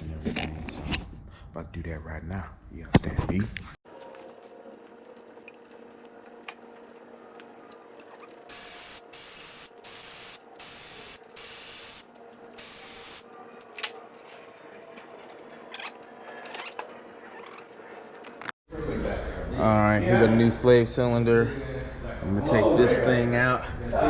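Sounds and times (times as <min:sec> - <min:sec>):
aerosol spray hissing: 0:08.5 - 0:13.2.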